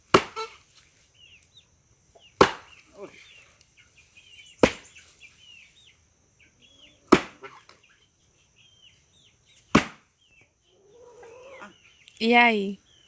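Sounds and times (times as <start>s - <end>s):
axe chopping log: 0.0s - 0.6s, 2.4s - 2.8s, 4.6s - 4.9s, 7.1s - 7.7s, 9.7s - 10.1s.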